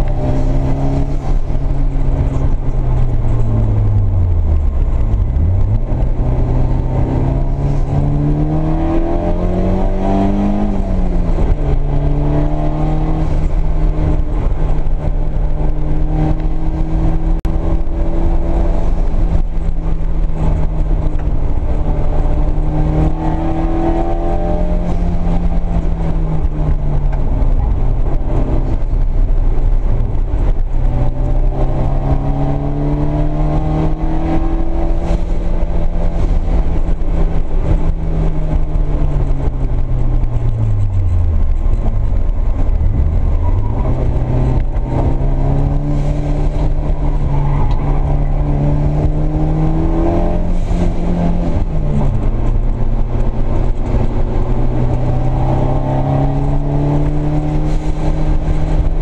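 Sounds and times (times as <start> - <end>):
car engine revving from inside: 42.5 - 58.9.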